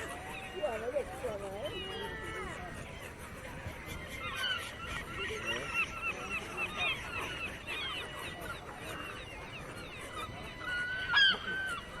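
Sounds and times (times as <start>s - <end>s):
many birds chirping: 0.0s - 12.0s.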